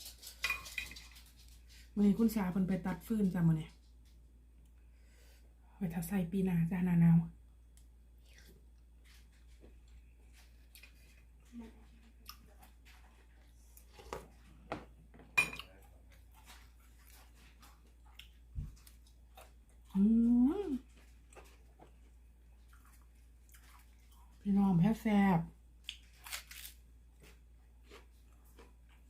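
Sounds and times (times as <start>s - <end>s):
faint chewing: 7.7s - 14.6s, 15.6s - 24.5s, 25.8s - 29.0s
person humming: 20.0s - 20.8s.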